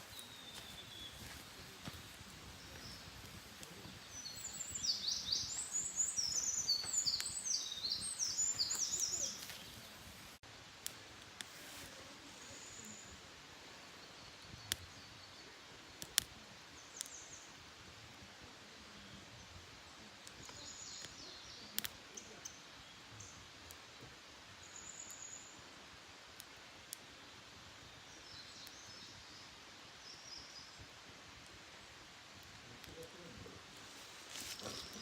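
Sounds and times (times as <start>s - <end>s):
small birds calling: 0.0s - 10.2s, 19.0s - 25.8s, 32.0s - 35.0s
wood fire crackling and popping: 0.0s - 11.7s, 15.9s - 17.1s, 21.8s - 22.0s.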